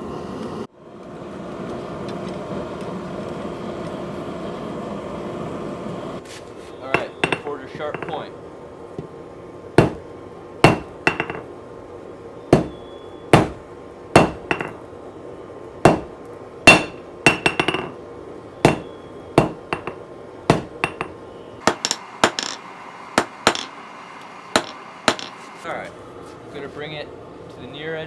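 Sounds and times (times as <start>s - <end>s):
hammer striking metal on anvil: 7.0s - 8.2s, 9.8s - 10.0s, 10.6s - 11.4s, 12.6s - 12.8s, 13.4s - 13.6s, 14.2s - 14.8s, 15.9s - 16.1s, 16.7s - 17.9s, 18.7s - 25.6s.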